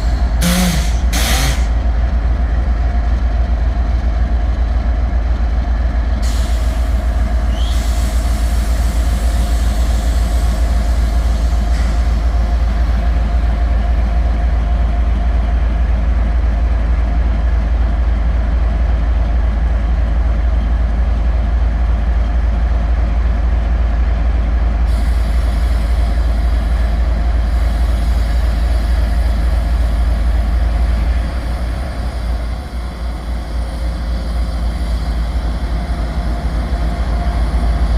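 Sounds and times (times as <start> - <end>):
diesel locomotive idling: 0.0 - 37.9
hiss: 0.4 - 1.7, 6.2 - 12.6.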